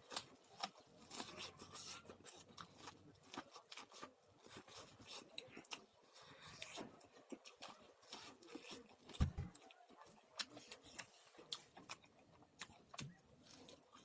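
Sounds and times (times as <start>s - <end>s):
popcorn being chewed: 0.0s - 14.0s.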